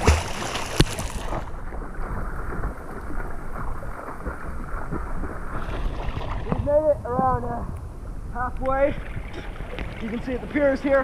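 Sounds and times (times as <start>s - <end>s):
water splashing from swimming: 0.0s - 6.7s.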